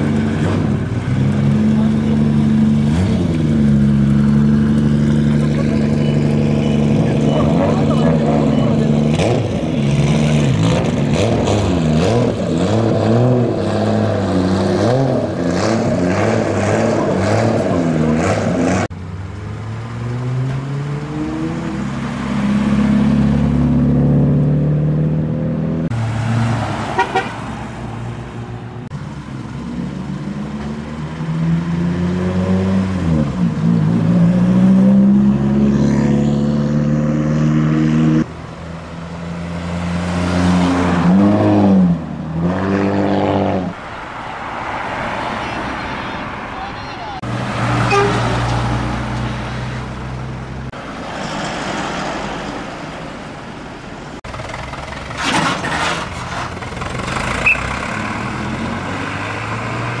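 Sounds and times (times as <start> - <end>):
car engines revving: 0.0 - 60.0
car horns: 26.8 - 27.6, 45.5 - 48.6, 57.4 - 57.9.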